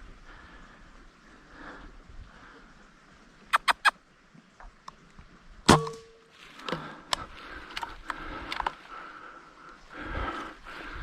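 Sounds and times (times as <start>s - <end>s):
air rifle shot with ringing twang: 5.7s - 6.2s.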